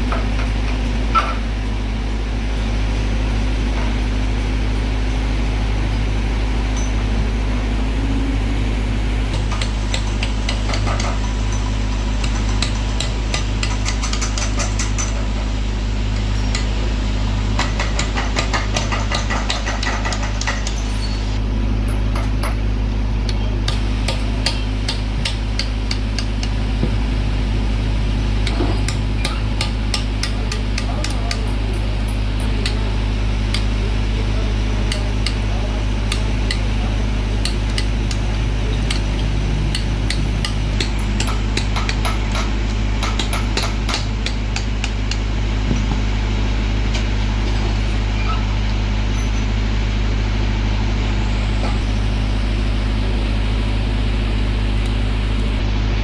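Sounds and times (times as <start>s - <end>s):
low machine hum: 0.0s - 56.0s
rapid hammer strikes on metal: 9.3s - 15.4s, 17.5s - 20.9s, 23.6s - 27.0s, 28.4s - 46.2s.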